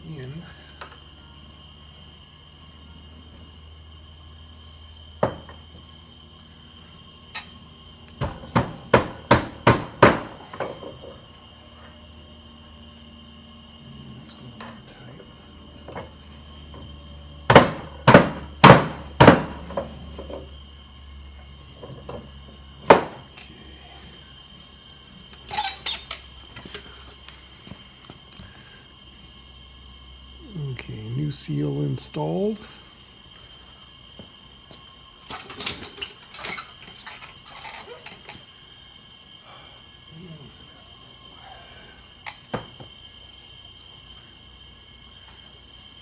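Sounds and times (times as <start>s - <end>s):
hammer strikes: 8.2s - 10.4s, 17.5s - 19.6s
metal tools clinking and clattering: 25.4s - 27.3s, 35.3s - 38.4s.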